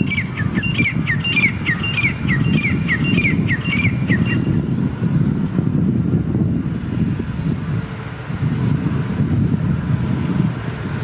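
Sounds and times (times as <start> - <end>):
bird chirping: 0.0 - 4.6.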